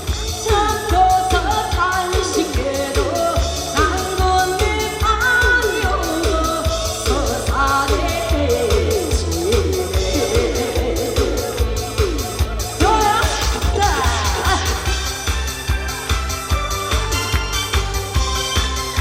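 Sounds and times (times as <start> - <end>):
backing track with strong beat: 0.0 - 19.0
woman singing: 0.3 - 15.2.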